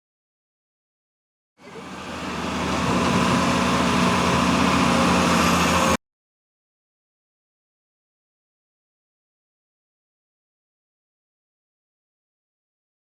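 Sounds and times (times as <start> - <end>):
excavator diesel engine running: 1.6 - 6.0.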